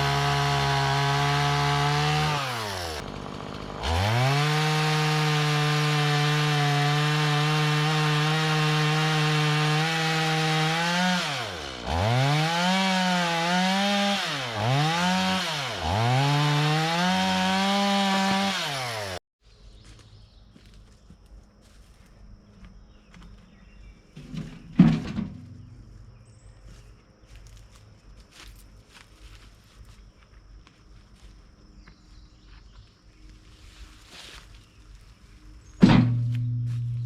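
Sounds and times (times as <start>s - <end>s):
chainsaw cutting log: 0.0s - 19.2s.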